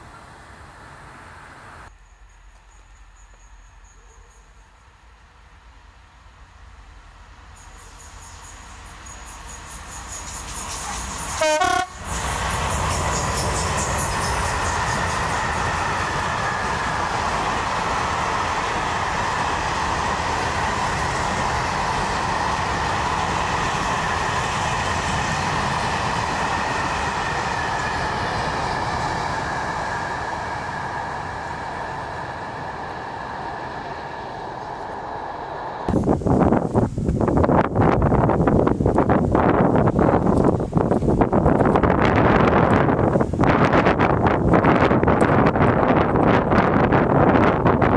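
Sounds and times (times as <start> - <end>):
passing train rumble: 4.7 - 47.9
train horn blast: 11.2 - 12.2.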